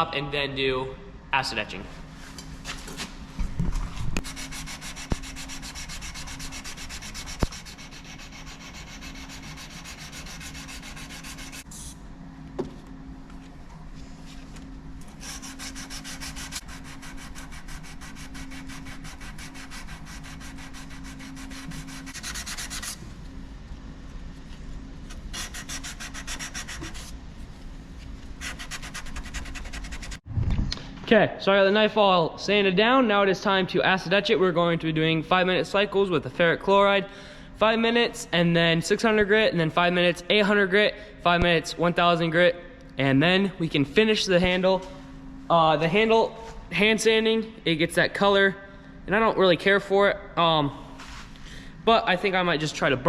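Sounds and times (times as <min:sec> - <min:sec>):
steady low hum: 0:00.0 - 0:53.0
sandpaper rubbing on knife blade: 0:04.2 - 0:12.0, 0:15.1 - 0:23.0, 0:25.3 - 0:27.1, 0:28.4 - 0:30.2.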